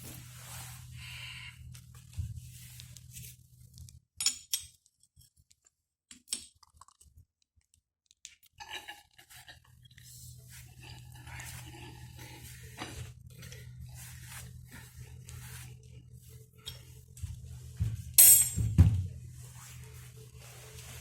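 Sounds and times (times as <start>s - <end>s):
metal parts clinking: 18.2s - 18.6s.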